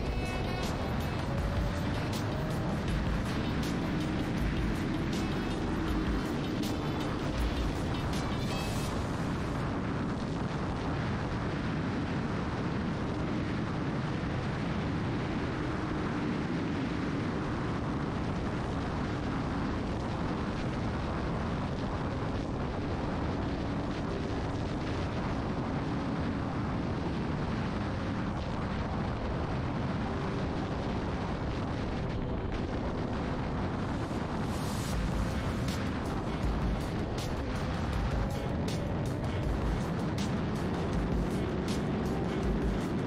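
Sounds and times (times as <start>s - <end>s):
motorcycle engine cruising: 0.0s - 9.6s, 33.9s - 43.0s
wind roaring on microphone: 0.0s - 43.0s.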